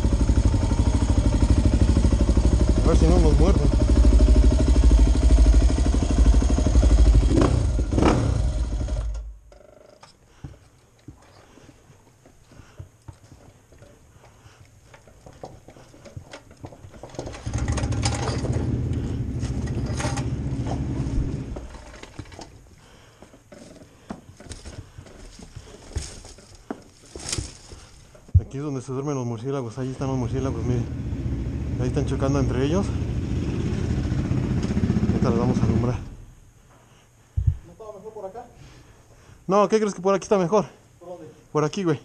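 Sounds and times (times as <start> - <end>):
dirt bike engine running: 0.0 - 9.5, 16.9 - 22.3, 30.0 - 36.2.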